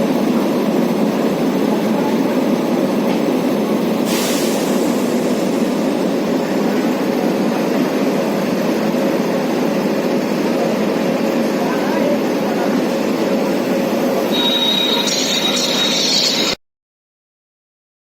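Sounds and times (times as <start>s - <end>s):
train wheels rumbling on track: 0.0s - 16.6s
brief hiss: 4.1s - 5.4s.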